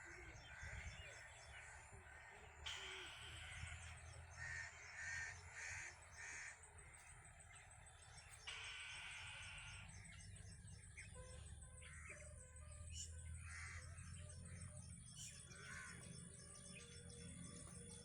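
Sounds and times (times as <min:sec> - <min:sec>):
bird calling: 0:00.0 - 0:12.3.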